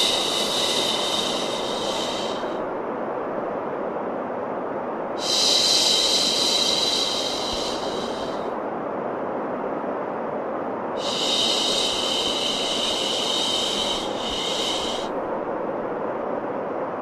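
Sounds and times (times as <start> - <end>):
bright high hiss: 0.0 - 2.7, 5.1 - 8.6, 10.9 - 15.3
steady white noise: 0.0 - 17.0.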